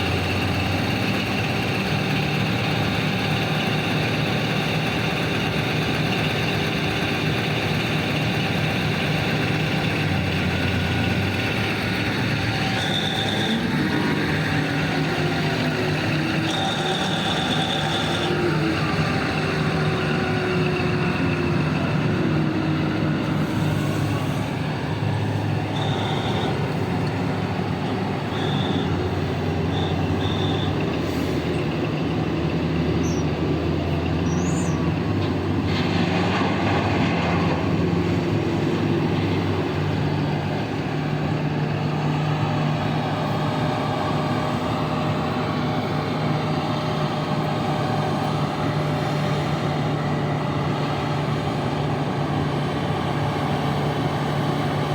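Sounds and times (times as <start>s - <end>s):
heavy diesel engines running: 0.0s - 54.9s.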